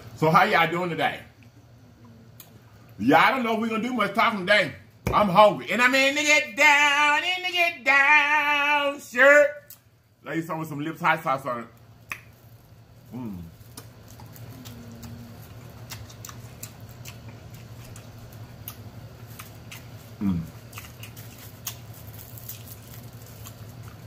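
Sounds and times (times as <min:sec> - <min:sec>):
chewing pizza: 0:13.0 - 0:24.0
person humming mmm: 0:13.1 - 0:13.6, 0:14.5 - 0:15.6, 0:20.2 - 0:20.6.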